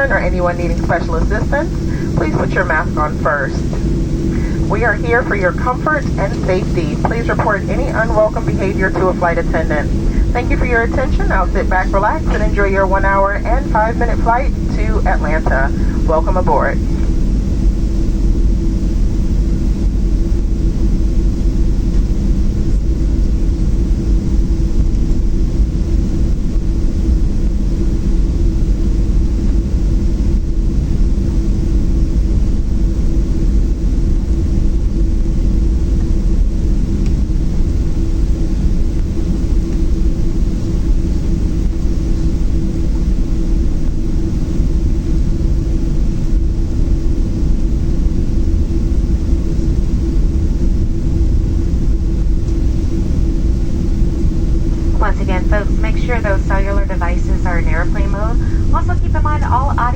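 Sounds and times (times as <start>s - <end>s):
airplane cabin engine drone: 0.0s - 59.9s.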